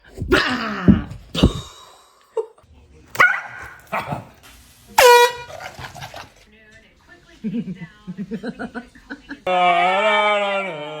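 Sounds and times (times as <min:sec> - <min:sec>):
dog barking: 0:03.2 - 0:04.4, 0:05.0 - 0:06.3.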